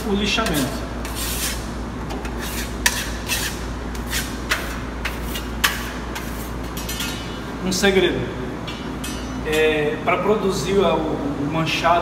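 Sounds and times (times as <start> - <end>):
low steady hum: 0.0 - 12.0
metal spatula scraping paste on wall: 0.4 - 1.6.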